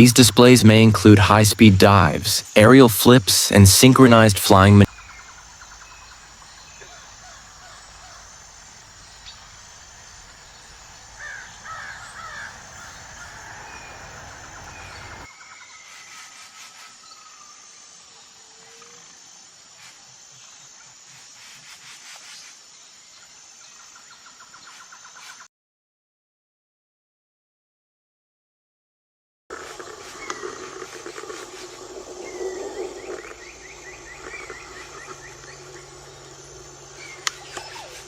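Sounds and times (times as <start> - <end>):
wild birds calling: 0.0 - 15.3, 29.5 - 38.0
outdoor ambience: 0.0 - 25.4, 29.5 - 38.0.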